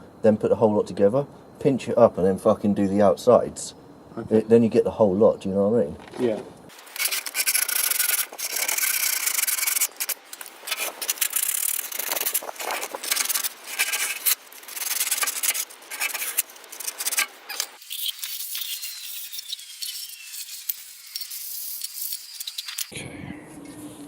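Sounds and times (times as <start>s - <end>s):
sandpaper rubbing on metal pipe: 6.8s - 22.9s.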